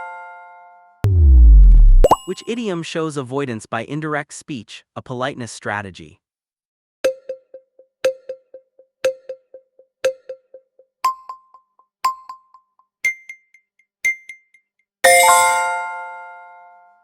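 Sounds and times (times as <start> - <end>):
countdown timer ticking: 1.1 - 2.4, 7.0 - 14.6.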